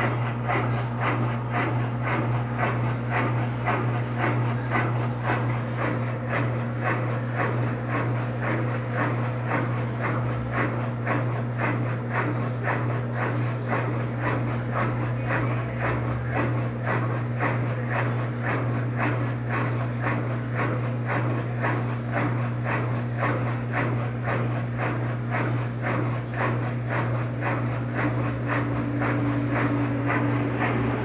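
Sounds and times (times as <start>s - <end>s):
washing machine motor hum: 0.0s - 31.0s.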